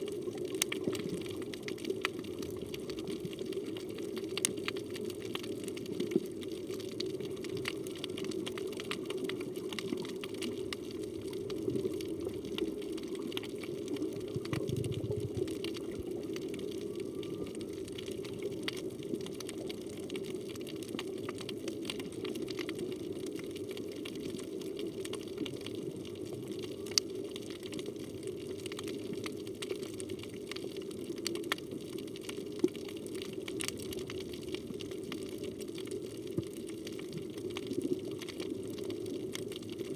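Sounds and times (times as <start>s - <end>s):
underwater water rush: 0.0s - 26.7s
sharp clicks and crackles: 0.1s - 39.9s.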